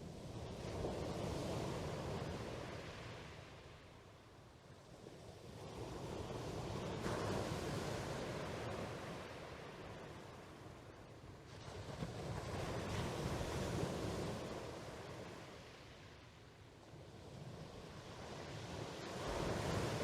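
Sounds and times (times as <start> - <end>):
sea waves washing in: 4.8 - 20.0.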